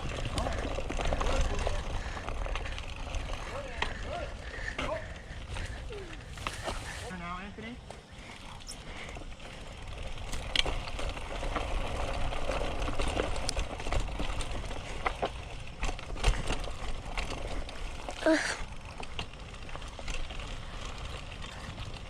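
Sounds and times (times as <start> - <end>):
wind rumbling on microphone: 0.0 - 7.1
bike rattling over bumps: 0.0 - 22.0
bike tyres rolling on dirt: 0.0 - 22.0.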